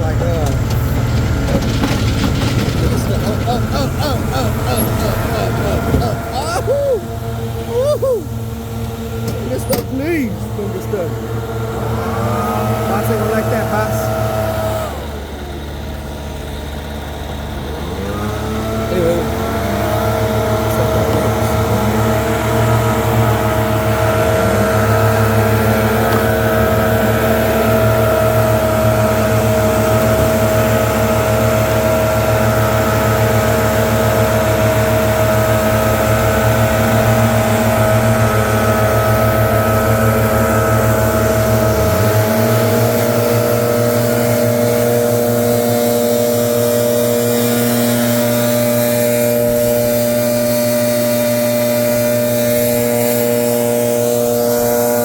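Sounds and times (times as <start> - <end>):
leaf blower running: 1.8 - 55.0.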